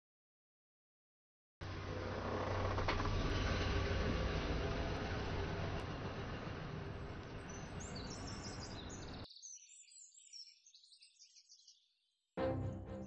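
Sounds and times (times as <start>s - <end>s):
birds chirping: 6.2s - 13.0s.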